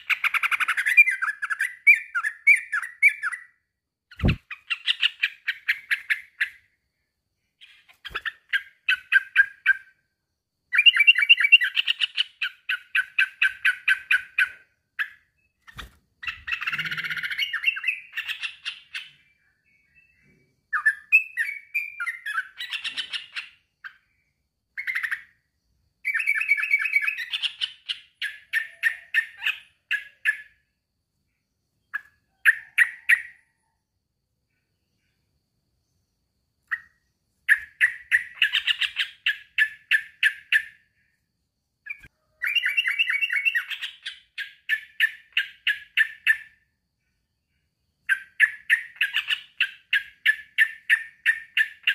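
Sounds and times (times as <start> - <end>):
bulbul singing fast repeated notes: 4.1 - 6.4
harsh bird chattering: 4.1 - 6.4.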